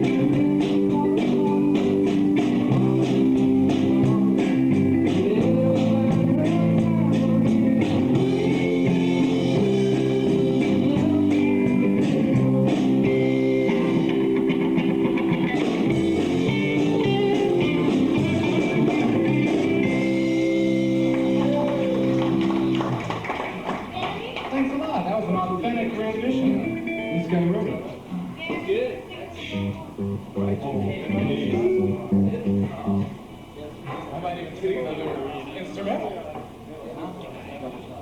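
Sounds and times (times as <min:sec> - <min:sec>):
bass guitar: 0:00.0 - 0:23.2, 0:29.5 - 0:33.2
steady drum beat: 0:00.0 - 0:23.2, 0:29.6 - 0:33.2
electric guitars: 0:00.0 - 0:23.5, 0:26.3 - 0:27.6, 0:29.5 - 0:33.2.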